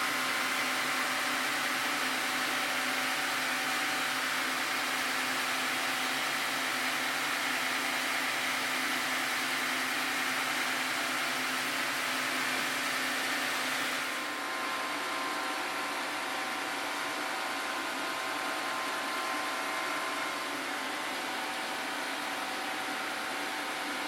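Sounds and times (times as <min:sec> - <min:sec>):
sawmill milling a log: 0:00.0 - 0:14.3.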